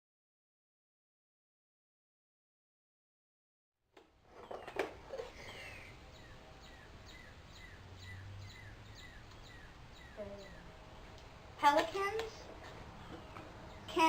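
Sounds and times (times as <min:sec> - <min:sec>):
small bird chirping: 0:04.4 - 0:14.0.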